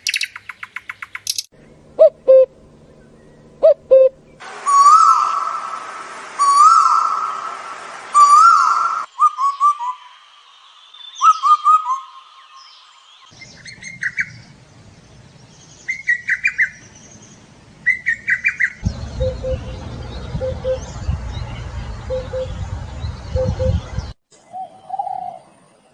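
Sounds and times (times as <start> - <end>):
rapid chattering bird notes: 0.0 - 2.2
whistled bird call: 3.9 - 5.8, 6.4 - 10.3, 10.9 - 14.4, 17.9 - 25.4
quick descending bird notes: 3.9 - 10.2, 18.6 - 24.2.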